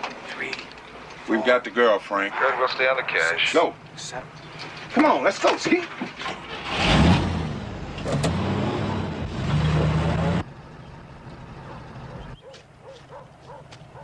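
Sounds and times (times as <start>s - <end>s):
car engine revving: 6.2s - 12.4s.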